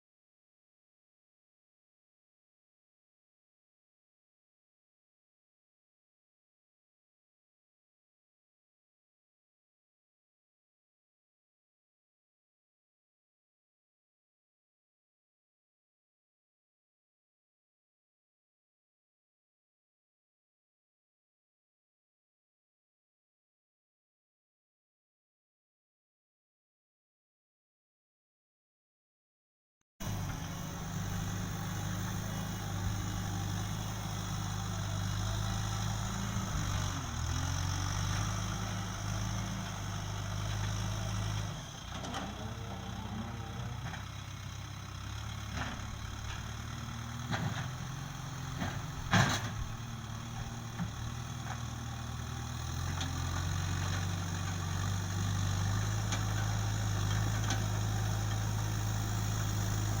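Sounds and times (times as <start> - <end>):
backhoe diesel engine running: 30.0 - 60.0.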